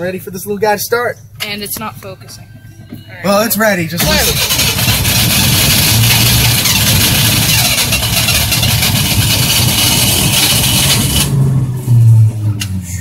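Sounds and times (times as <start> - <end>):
starter motor cranking: 4.0 - 11.3
car engine running roughly: 4.0 - 12.3.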